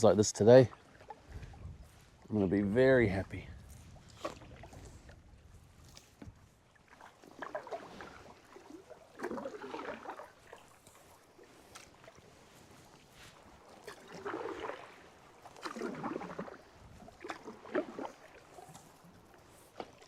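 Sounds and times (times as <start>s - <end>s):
paddle splashing in water: 0.6s - 2.3s, 3.1s - 20.0s
water dripping off paddle: 6.9s - 12.3s, 13.4s - 20.0s.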